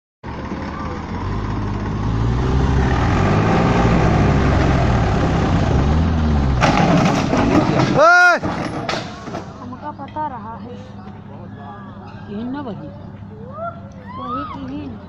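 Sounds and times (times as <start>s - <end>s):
tractor engine running: 0.2s - 15.0s.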